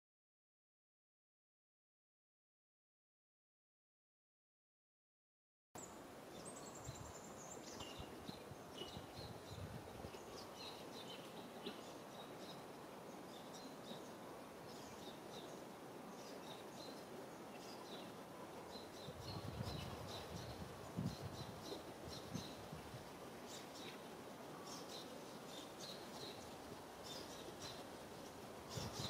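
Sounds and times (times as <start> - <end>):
small birds chirping: 5.8 - 29.0
steady hiss: 5.8 - 29.0.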